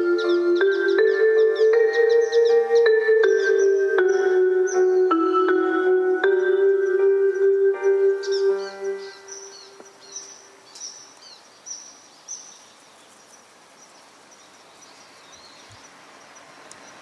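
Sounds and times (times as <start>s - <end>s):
loudspeaker chime: 0.0s - 9.2s
outdoor background noise: 0.0s - 17.0s
small birds chirping: 0.0s - 17.0s.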